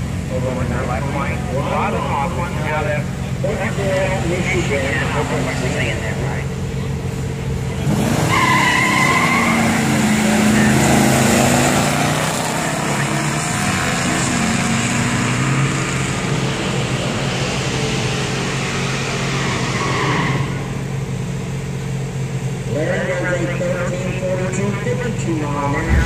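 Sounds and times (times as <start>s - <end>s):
car engines revving and accelerating: 0.0s - 26.0s.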